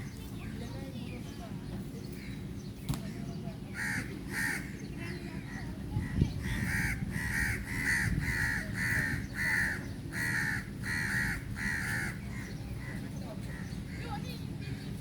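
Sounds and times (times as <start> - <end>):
crow cawing: 3.8 - 4.8, 6.4 - 13.0.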